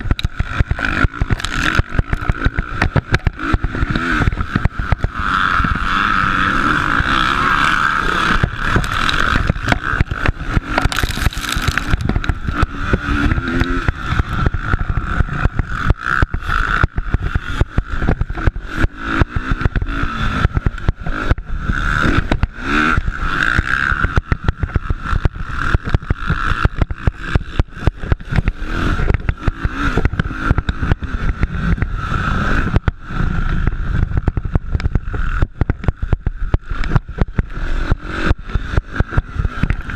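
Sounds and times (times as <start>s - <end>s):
rough crackle: 0.0s - 38.0s
motocross bike engines revving: 0.0s - 39.9s.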